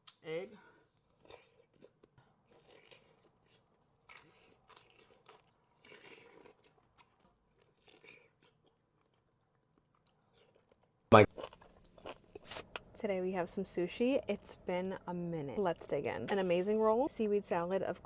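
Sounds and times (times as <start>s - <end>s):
person chewing: 0.9s - 12.8s.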